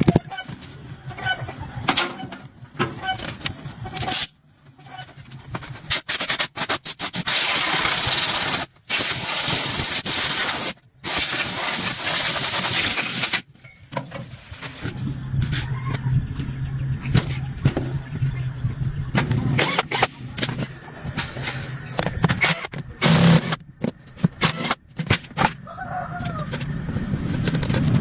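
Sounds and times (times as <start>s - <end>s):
hissing spray: 6.0s - 13.4s.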